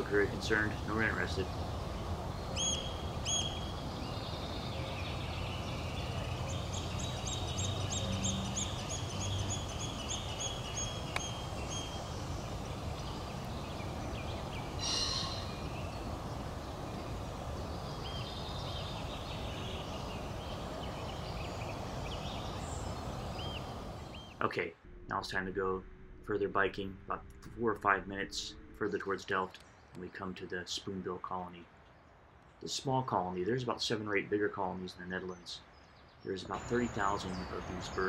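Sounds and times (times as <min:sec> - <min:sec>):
small birds calling: 0:00.0 - 0:24.5, 0:34.8 - 0:38.0
outdoor background noise: 0:00.0 - 0:38.0.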